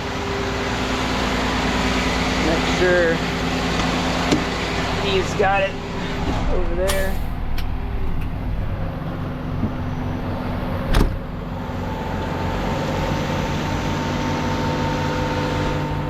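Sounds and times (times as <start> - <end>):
tow truck engine idling: 0.0 - 16.0
loud thump: 10.8 - 11.3.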